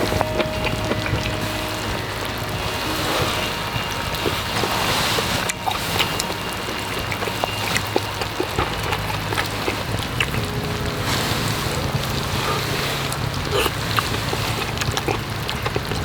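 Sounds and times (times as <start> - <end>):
food sizzling over flame: 0.0 - 16.0
small pops and crackles: 11.7 - 16.0.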